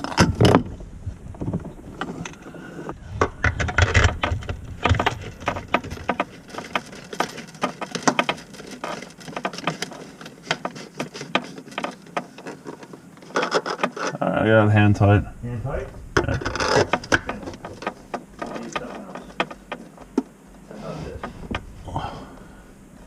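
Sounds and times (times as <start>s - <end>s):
small metallic knocks: 16.2s - 20.3s.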